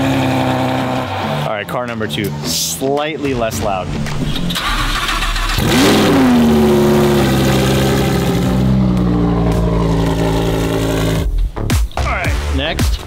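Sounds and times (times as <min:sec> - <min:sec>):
car engine revving and idling: 0:00.0 - 0:01.5, 0:04.4 - 0:11.5.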